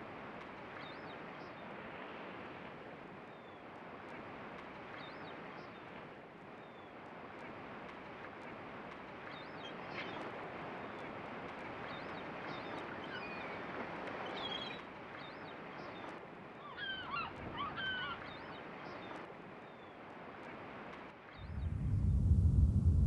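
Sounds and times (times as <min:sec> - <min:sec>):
steady rushing noise: 0:21.4 - 0:23.0.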